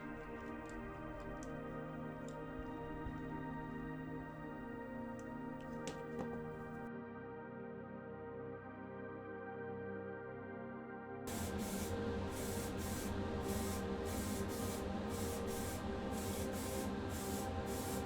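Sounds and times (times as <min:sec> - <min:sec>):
hissing spray paint: 0:05.5 - 0:06.6, 0:11.3 - 0:18.0.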